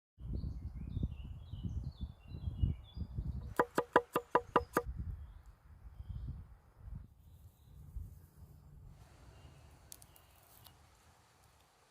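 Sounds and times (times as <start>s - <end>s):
birds chirping: 0.3s - 6.4s
sharp wooden knocks: 3.5s - 4.9s.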